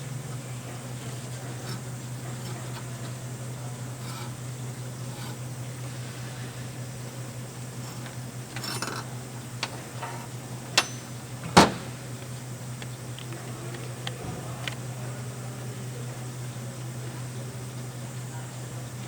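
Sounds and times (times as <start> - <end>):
clicks of tools being handled: 7.7 - 14.8.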